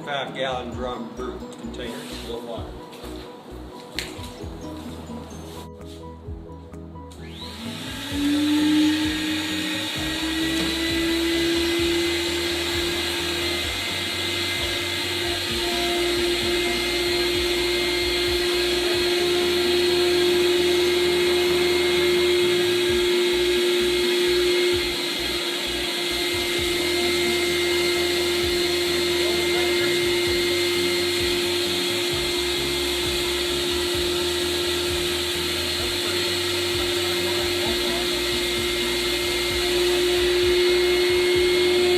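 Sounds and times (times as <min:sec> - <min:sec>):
vacuum motor whine: 0:07.2 - 0:41.9.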